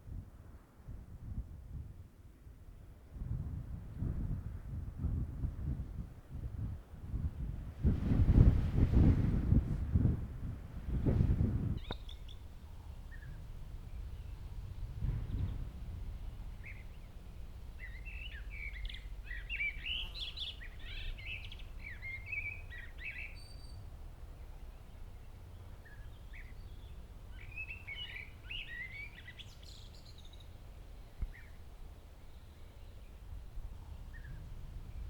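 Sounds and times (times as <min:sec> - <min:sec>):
steady low rumble: 0:06.7 - 0:19.9
small birds chirping: 0:11.8 - 0:15.7, 0:16.3 - 0:33.3.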